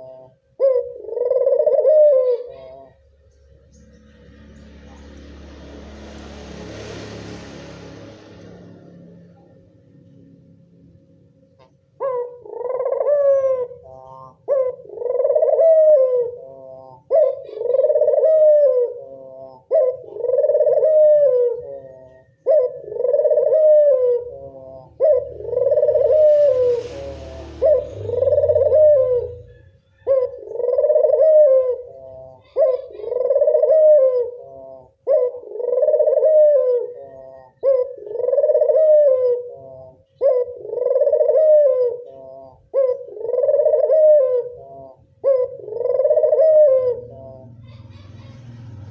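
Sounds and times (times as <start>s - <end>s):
dove cooing: 0.0s - 6.1s, 11.6s - 48.9s.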